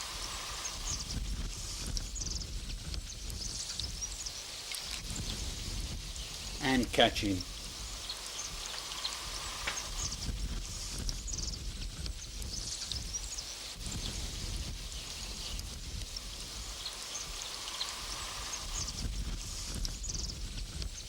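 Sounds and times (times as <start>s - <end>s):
high chirping calls: 6.1s - 14.3s.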